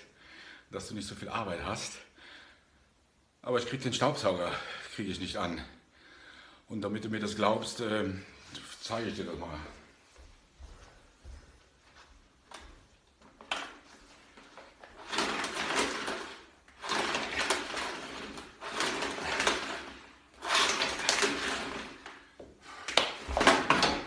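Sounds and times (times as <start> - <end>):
rattling scraping handling noise: 13.5 - 22.3.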